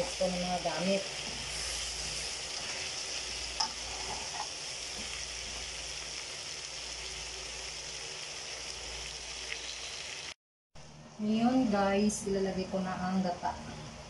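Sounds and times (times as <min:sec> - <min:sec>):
food sizzling in a pan: 0:00.0 - 0:10.4.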